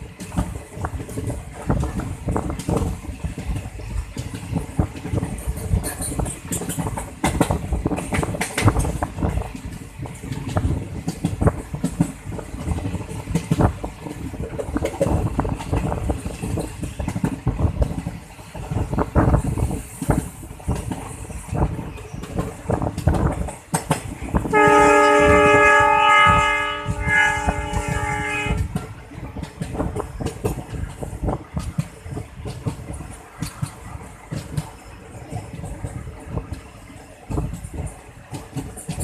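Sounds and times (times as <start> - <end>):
train rumble: 0.0 - 39.0
locomotive horn blast: 24.5 - 28.7.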